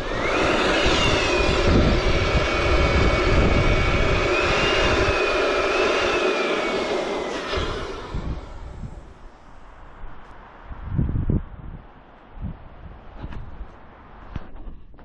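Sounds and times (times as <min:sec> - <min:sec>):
balloon pump motor whine: 0:00.0 - 0:09.4
rush of air: 0:00.0 - 0:15.0.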